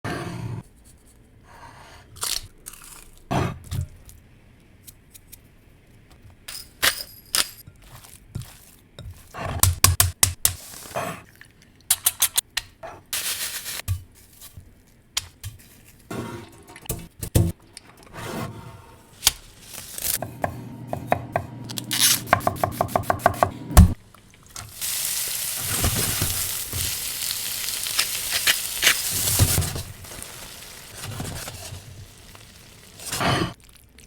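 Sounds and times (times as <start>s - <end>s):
knife chopping on cutting board: 20.2s - 24.0s
food sizzling in pan: 24.5s - 33.5s.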